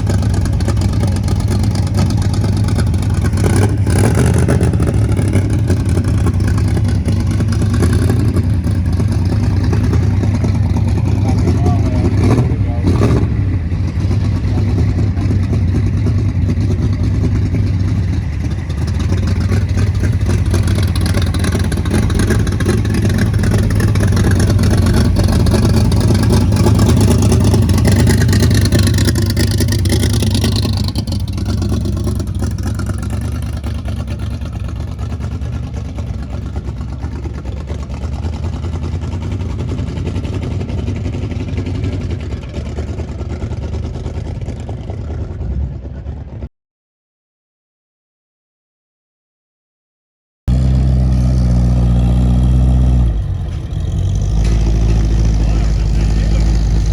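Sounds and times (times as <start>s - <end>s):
car passing at low speed: 50.8s - 56.9s.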